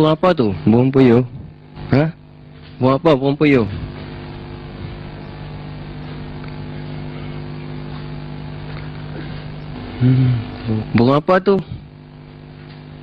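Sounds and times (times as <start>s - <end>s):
engine-like drone: 0.0s - 13.0s.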